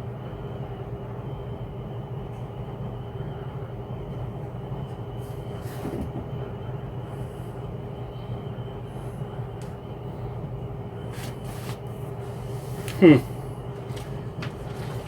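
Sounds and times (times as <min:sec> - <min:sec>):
low mechanical hum: 0:00.0 - 0:15.0
rustling handling noises: 0:11.1 - 0:15.0.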